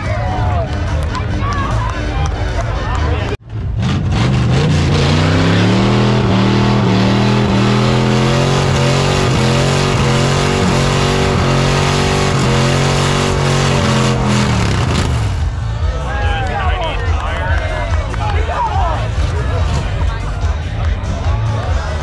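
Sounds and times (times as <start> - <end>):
car engine revving: 0.7 - 16.1
loud even noise: 3.4 - 17.0.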